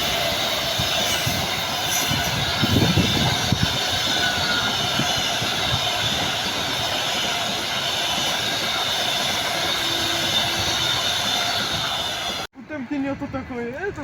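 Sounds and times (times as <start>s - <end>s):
train wheels rolling on rails: 0.0s - 12.5s.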